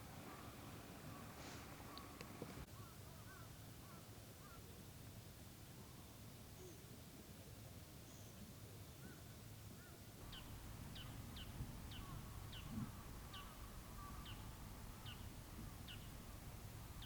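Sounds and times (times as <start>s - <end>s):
faint low rumble: 10.2s - 17.0s.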